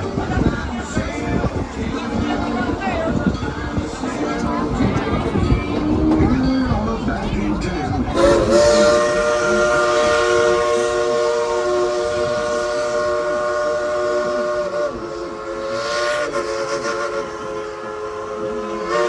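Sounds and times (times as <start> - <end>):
steam locomotive chime whistle: 8.1 - 19.0.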